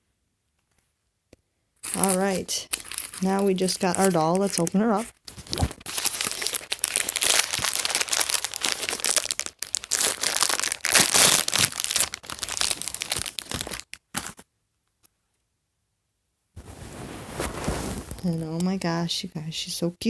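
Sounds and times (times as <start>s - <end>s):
plastic wrapper crinkling and tearing: 1.8s - 14.4s, 17.4s - 18.6s.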